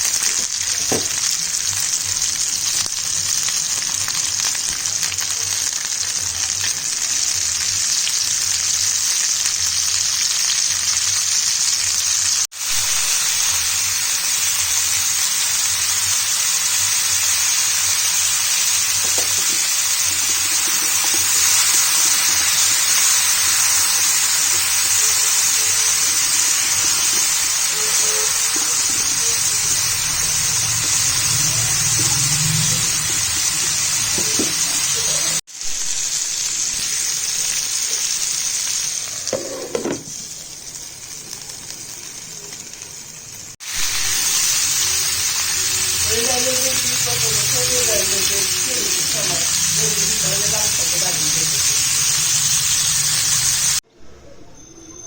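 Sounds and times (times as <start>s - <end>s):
pumpkin sizzling in oil: 0.0s - 53.8s.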